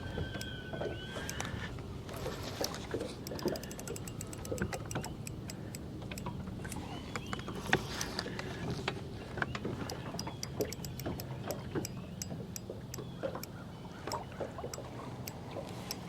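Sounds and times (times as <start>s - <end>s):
fishing reel clicking: 2.5s - 7.3s, 9.8s - 12.7s.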